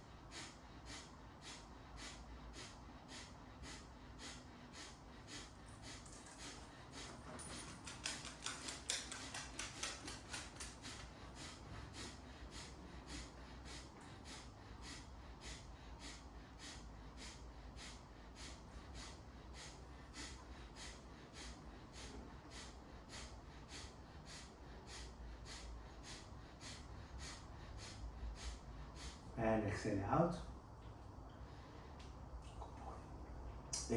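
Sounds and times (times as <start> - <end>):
forceful nasal exhalations: 9.8 - 29.9.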